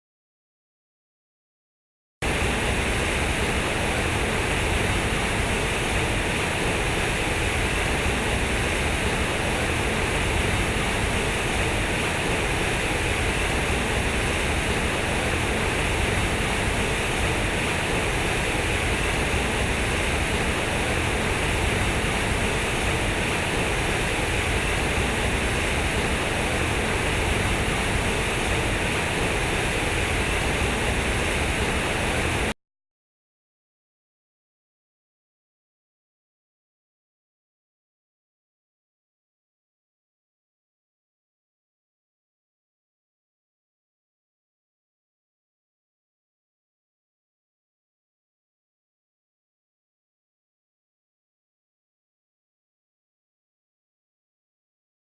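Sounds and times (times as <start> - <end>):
steady rushing noise: 2.2 - 32.5.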